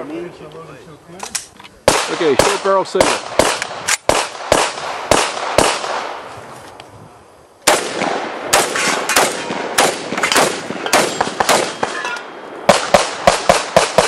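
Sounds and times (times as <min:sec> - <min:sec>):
shotgun firing rapid shots: 0:01.9 - 0:06.2, 0:07.6 - 0:12.0, 0:12.7 - 0:14.0.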